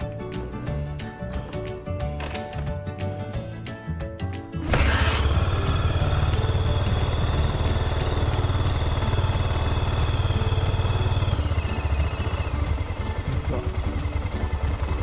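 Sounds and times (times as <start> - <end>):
motorcycle engine idling: 4.6 - 15.0.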